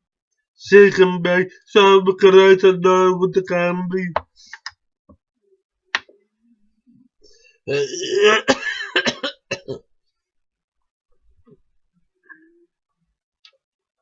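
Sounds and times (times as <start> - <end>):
person making raspy throaty noise: 7.6 - 9.7.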